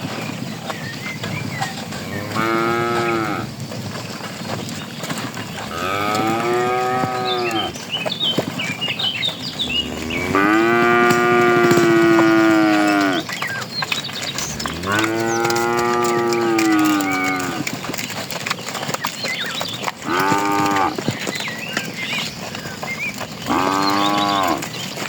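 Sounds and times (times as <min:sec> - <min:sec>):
cattle mooing: 0:02.0 - 0:03.5, 0:05.7 - 0:07.8, 0:09.6 - 0:13.3, 0:14.4 - 0:17.7, 0:20.0 - 0:21.0, 0:23.5 - 0:24.6.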